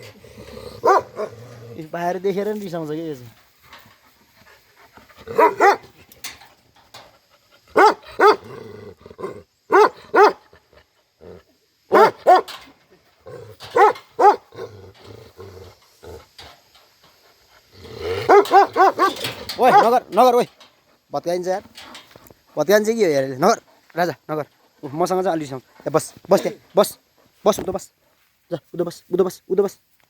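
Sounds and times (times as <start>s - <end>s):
dog growling: 0.0s - 1.9s, 5.0s - 6.0s, 7.8s - 12.4s, 13.2s - 16.5s, 17.5s - 19.9s
dog barking angrily: 0.7s - 1.5s, 5.2s - 6.0s, 7.7s - 10.6s, 11.9s - 12.6s, 13.3s - 14.8s, 17.9s - 20.1s.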